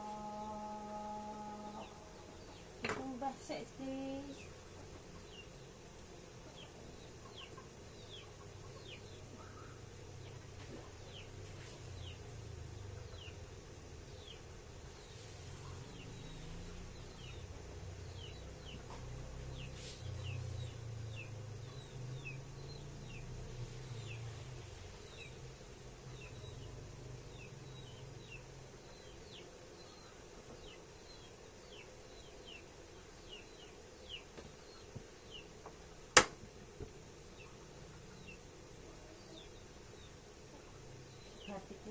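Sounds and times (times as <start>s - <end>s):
chicks peeping: 6.4s - 12.2s.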